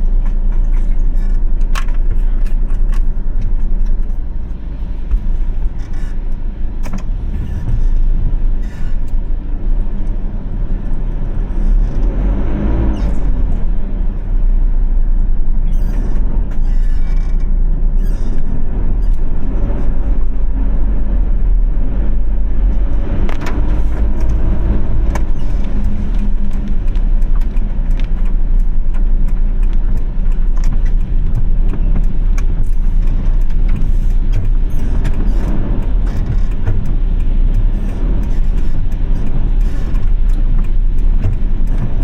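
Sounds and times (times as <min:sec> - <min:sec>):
car road and engine rumble: 0:00.0 - 0:42.0
sharp ticks: 0:24.1 - 0:42.0.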